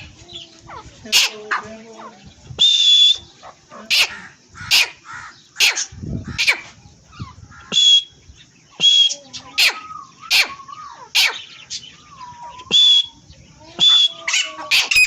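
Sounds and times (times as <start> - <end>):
faint whistled notes: 2.6 - 3.3, 7.7 - 8.2, 8.8 - 9.2, 12.3 - 13.2, 13.8 - 14.3
harsh shrill francolin calls: 2.6 - 8.2, 8.8 - 13.2, 13.8 - 15.0.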